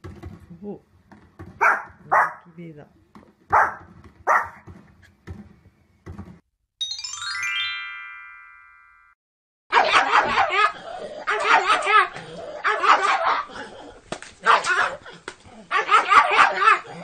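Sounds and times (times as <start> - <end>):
dog barking: 1.6 - 2.5, 3.5 - 4.6, 9.7 - 13.5, 14.4 - 15.1, 15.7 - 17.0
small dog yapping rapidly: 3.5 - 4.7, 9.7 - 13.5, 14.4 - 16.9
falling chime musical sting: 6.8 - 9.2.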